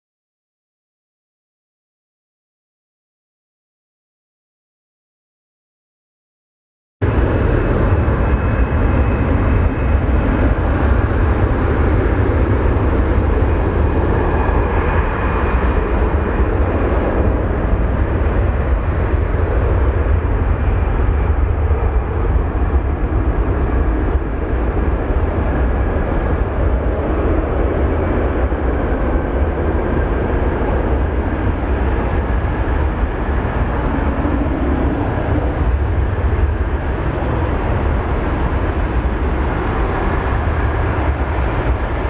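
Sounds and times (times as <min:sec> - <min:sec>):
jet engines rumbling: 0:07.0 - 0:42.0.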